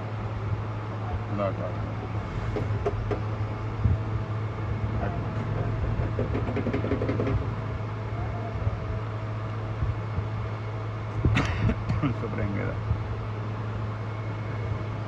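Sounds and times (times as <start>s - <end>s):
low mechanical hum: 0.0s - 15.0s
metallic clicks and knocks: 5.6s - 7.5s.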